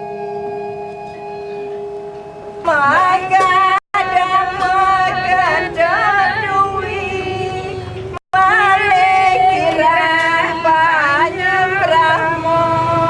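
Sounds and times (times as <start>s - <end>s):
sustained ringing tone: 0.0s - 4.1s
high voice singing: 2.6s - 13.0s.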